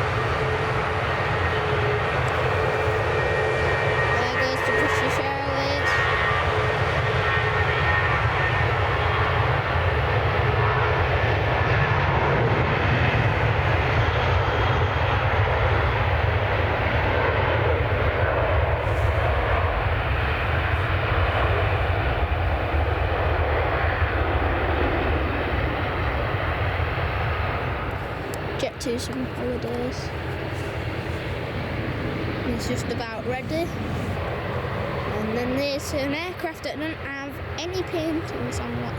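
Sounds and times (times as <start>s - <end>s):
jet airliner departing: 0.0s - 38.9s.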